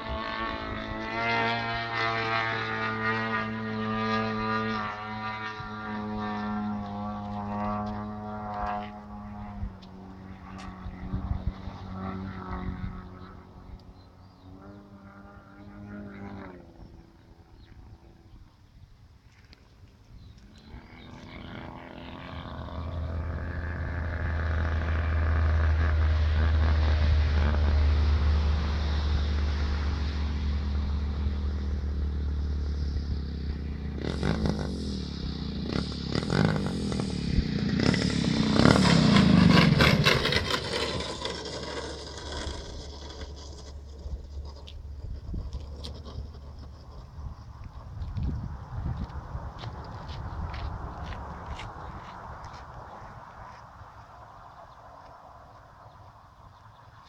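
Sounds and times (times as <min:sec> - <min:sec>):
propeller aircraft engine droning: 0:00.0 - 0:57.0.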